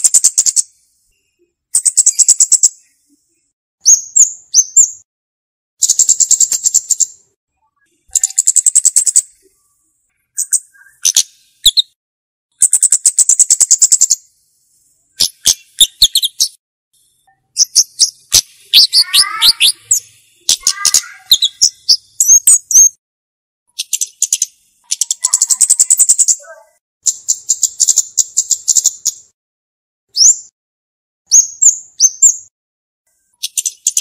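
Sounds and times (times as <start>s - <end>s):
bird high sharp ticking calls: 0.0s - 3.1s, 3.8s - 5.0s, 5.8s - 7.3s, 7.9s - 9.6s, 10.2s - 14.4s, 15.1s - 23.0s, 23.7s - 29.4s, 31.3s - 32.5s, 33.2s - 34.0s
bird descending chirps: 18.7s - 22.0s.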